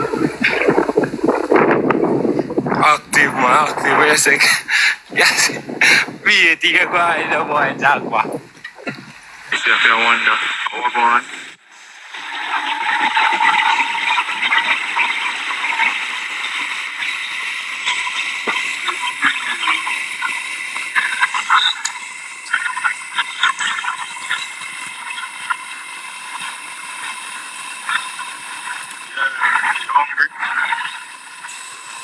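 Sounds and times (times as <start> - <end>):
heavy rain and wind: 0.0 - 9.6
rain spatters and crackles: 0.0 - 32.0.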